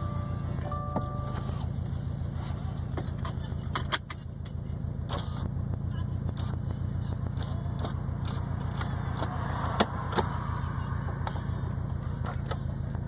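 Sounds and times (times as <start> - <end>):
car engine low drone: 0.0 - 13.0.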